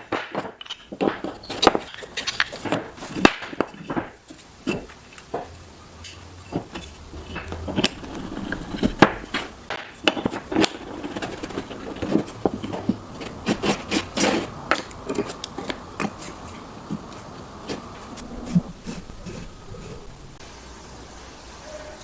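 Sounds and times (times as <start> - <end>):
loud wooden clacks: 0.0 - 5.5, 6.6 - 15.4.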